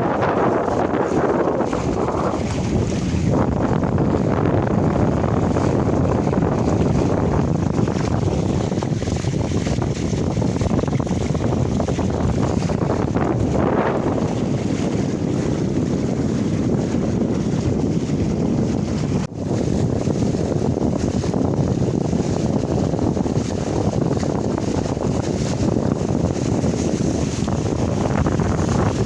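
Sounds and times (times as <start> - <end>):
water sounds from boat: 0.0 - 29.0
wind buffeting microphone: 0.0 - 29.0.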